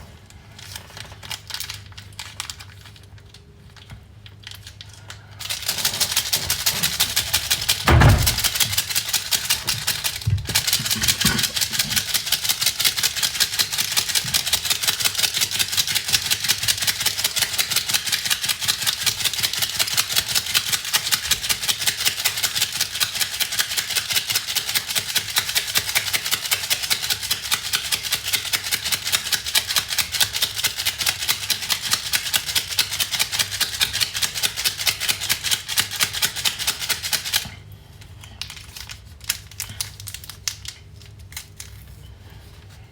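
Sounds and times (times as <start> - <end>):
whisking in a bowl: 5.5 - 37.5.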